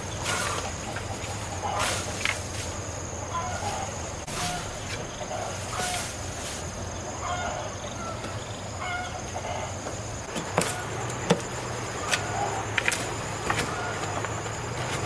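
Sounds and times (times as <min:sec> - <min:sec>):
steady low hum: 0:00.0 - 0:15.0
sharp knocks of work: 0:09.8 - 0:15.0.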